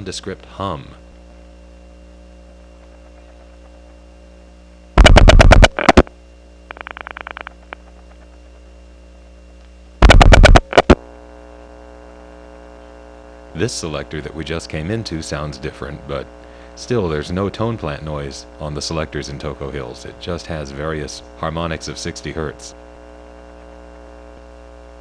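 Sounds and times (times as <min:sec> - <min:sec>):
power-supply hum: 0:00.0 - 0:25.0
loud dial-pulse clicks: 0:02.5 - 0:04.1, 0:05.0 - 0:08.7, 0:10.0 - 0:11.0
rapid faint clicks: 0:02.5 - 0:04.1, 0:05.0 - 0:08.7, 0:09.6 - 0:11.0.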